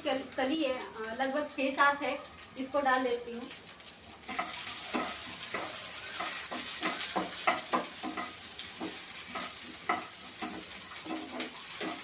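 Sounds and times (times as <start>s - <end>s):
onion and garlic sizzling in oil: 0.0s - 12.0s
wooden spatula scraping a pan: 4.3s - 12.0s.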